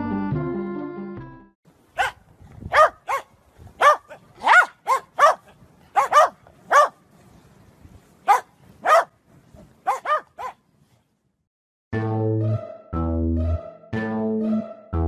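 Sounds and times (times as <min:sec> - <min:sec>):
music: 0:00.0 - 0:01.6, 0:11.9 - 0:15.0
dog barking: 0:02.0 - 0:07.0, 0:08.2 - 0:09.1, 0:09.8 - 0:10.6.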